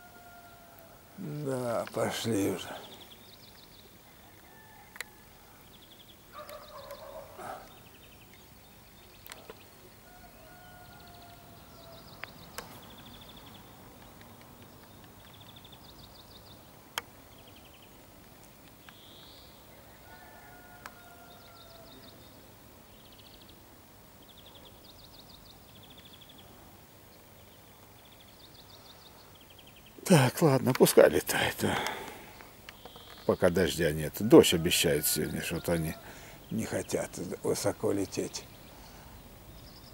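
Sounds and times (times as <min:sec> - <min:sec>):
sharp clicks: 0:13.4 - 0:15.6.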